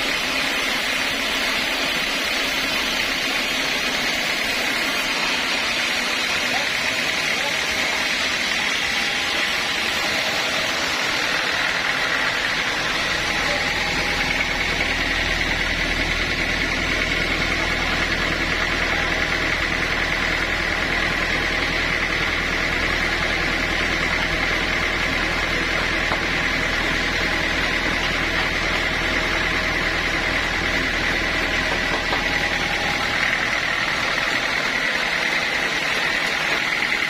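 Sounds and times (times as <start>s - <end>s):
high whine: 0.0s - 37.0s
sawmill machinery running: 0.0s - 37.0s
low hum: 8.1s - 37.0s.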